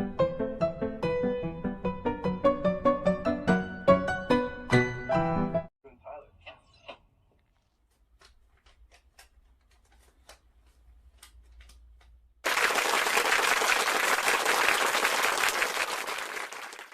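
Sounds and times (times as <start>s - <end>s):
faint scattered claps: 11.2s - 16.9s
loud dense applause: 12.4s - 16.9s.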